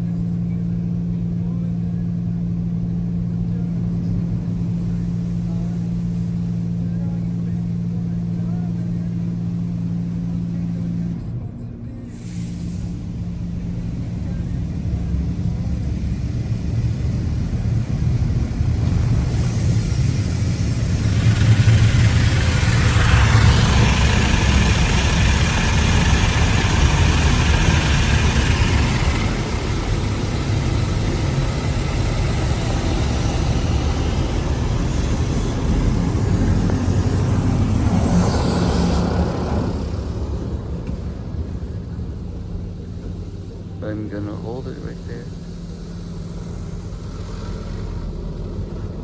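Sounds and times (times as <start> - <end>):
car wash machine rumble: 0.0 - 49.0
water spraying on car body: 12.2 - 49.0.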